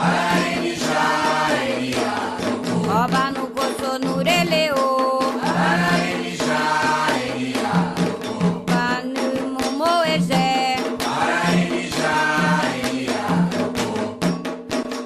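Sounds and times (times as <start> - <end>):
voices chanting: 0.0 - 2.6
drum strikes: 0.0 - 15.0.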